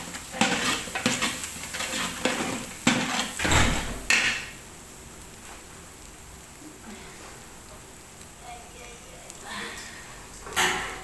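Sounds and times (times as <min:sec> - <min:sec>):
metal spoon scraping cooking pot: 0:00.0 - 0:03.5.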